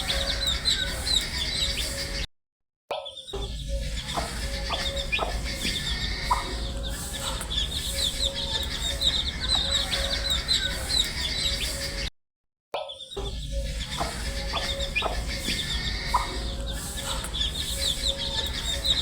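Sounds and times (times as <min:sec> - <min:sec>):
baby chicks peeping: 0:00.0 - 0:02.2, 0:03.3 - 0:12.1, 0:13.1 - 0:19.0
steady low hum: 0:03.5 - 0:12.1, 0:13.5 - 0:19.0.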